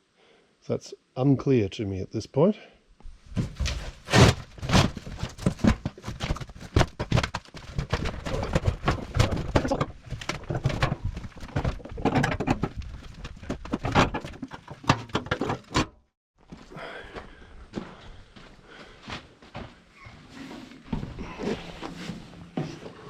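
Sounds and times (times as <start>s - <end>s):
metal parts knocking and rattling: 5.0s - 16.0s.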